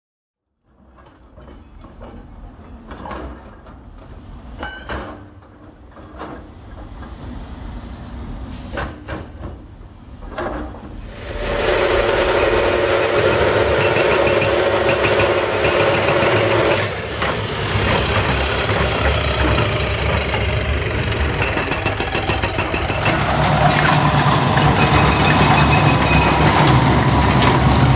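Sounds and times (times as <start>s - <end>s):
machinery knocks and clatter: 1.0s - 7.2s, 13.3s - 27.9s
loud steady machine noise: 11.0s - 27.9s.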